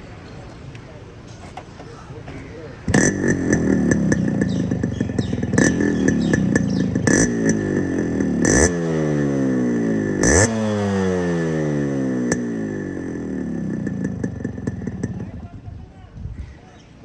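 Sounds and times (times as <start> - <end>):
two-stroke engine revving: 2.8 - 15.7.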